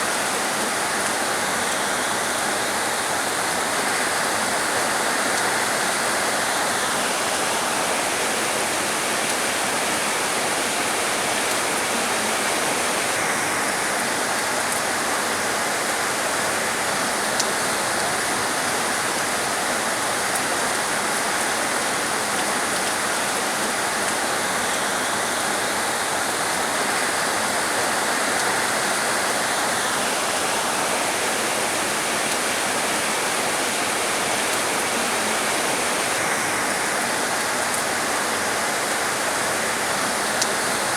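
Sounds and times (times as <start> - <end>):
heavy rain hiss: 0.0 - 40.9.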